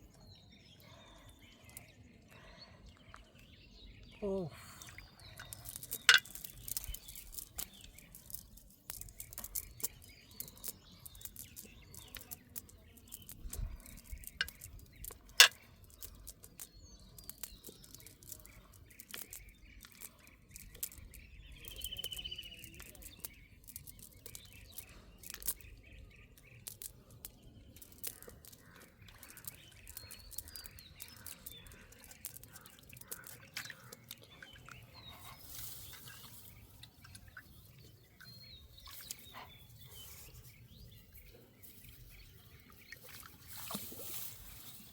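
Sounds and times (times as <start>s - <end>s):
small birds chirping: 0.0s - 44.9s
sharp clicks and knocks: 5.4s - 7.7s.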